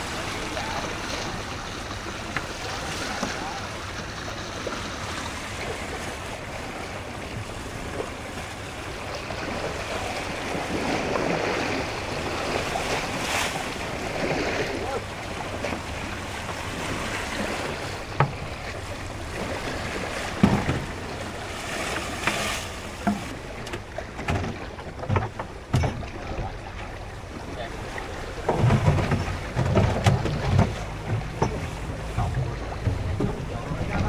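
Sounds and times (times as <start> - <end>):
sea waves: 0.0 - 34.0
wind: 0.0 - 34.0
knocks: 20.4 - 20.9
wind buffeting the microphone: 28.2 - 34.0.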